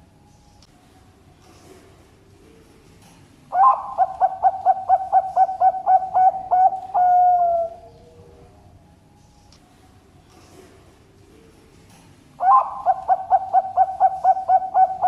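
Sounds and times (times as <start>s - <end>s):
dove cooing: 3.5s - 8.6s, 12.4s - 15.0s.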